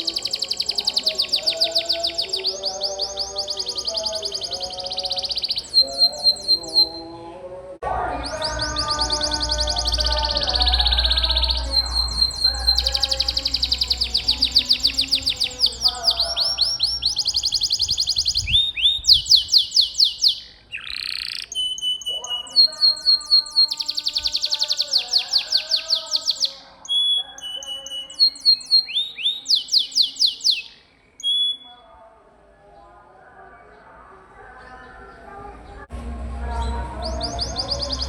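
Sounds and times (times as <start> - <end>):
canary singing trills: 0.0 - 32.1, 32.8 - 38.0.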